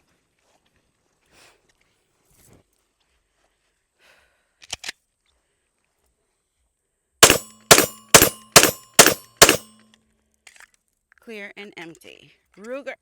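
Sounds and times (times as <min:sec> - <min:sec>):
pistol shots: 0:07.2 - 0:09.8.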